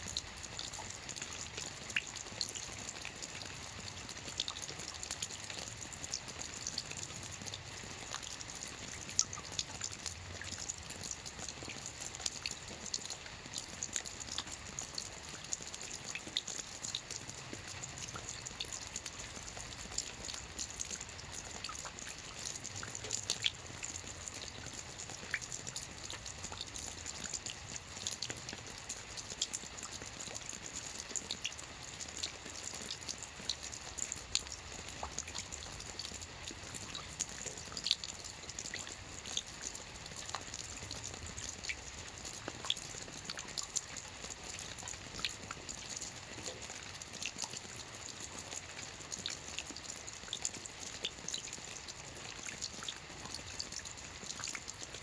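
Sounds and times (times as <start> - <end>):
rain hissing on a roof: 0.0 - 55.0.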